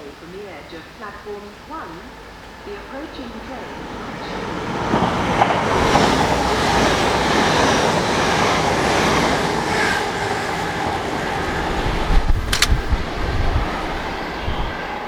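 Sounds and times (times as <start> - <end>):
passenger train passing: 0.0 - 15.0.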